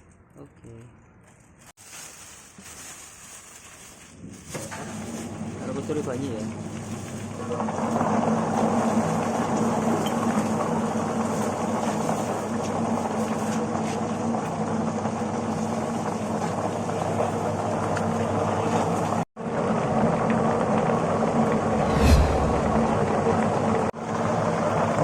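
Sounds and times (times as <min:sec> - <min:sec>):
dense rushing noise: 0:21.6 - 0:23.4.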